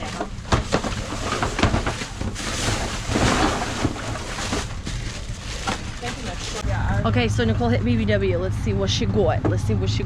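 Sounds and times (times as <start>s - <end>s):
knocks and clatters of trash: 0.0s - 6.6s
trash rustling: 0.0s - 6.8s.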